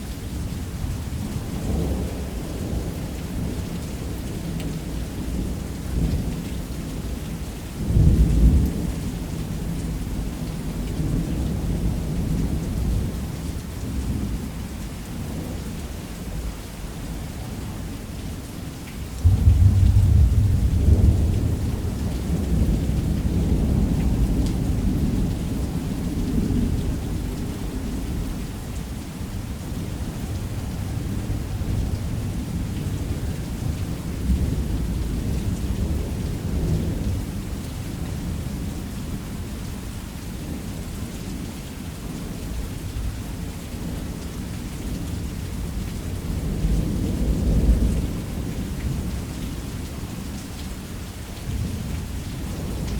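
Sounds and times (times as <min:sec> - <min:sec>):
heavy rain: 0:00.0 - 0:52.9
thunder: 0:19.2 - 0:25.1.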